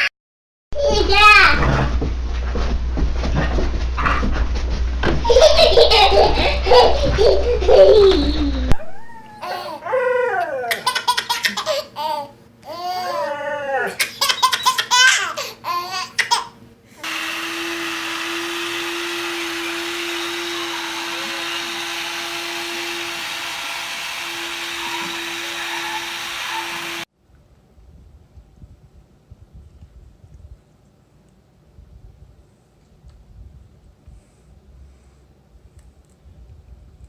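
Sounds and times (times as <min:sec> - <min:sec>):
whirring machine hum: 0:00.8 - 0:10.2, 0:17.0 - 0:27.1
baby laughing: 0:05.2 - 0:09.8, 0:10.7 - 0:13.3, 0:13.9 - 0:16.6.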